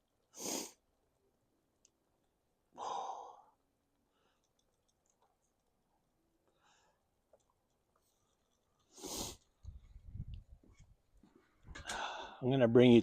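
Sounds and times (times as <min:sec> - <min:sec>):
man exhaling hard: 0:02.8 - 0:03.5, 0:11.8 - 0:12.4.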